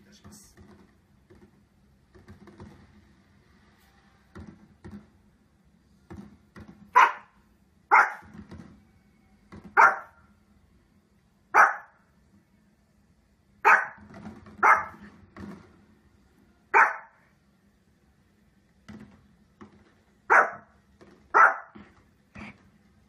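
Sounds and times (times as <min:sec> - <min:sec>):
small dog barking: 0:06.9 - 0:08.3, 0:09.7 - 0:10.2, 0:11.5 - 0:12.0, 0:13.6 - 0:14.0, 0:14.6 - 0:15.0, 0:16.7 - 0:17.2, 0:20.3 - 0:20.7, 0:21.3 - 0:21.8.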